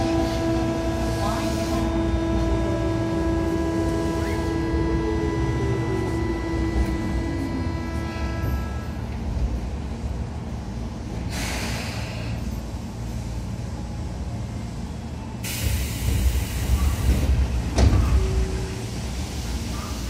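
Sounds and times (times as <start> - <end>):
train interior low rumble: 0.0 - 20.0
air hiss: 11.3 - 12.4.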